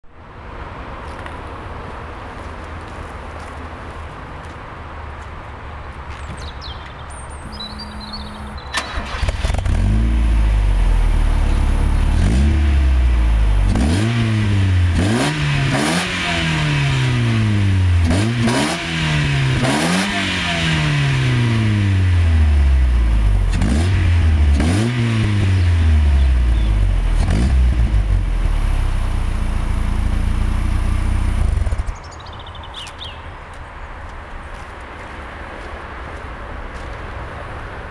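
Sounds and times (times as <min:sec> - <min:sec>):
car engine revving: 0:07.5 - 0:32.0
car engine starting and idling: 0:07.5 - 0:32.0.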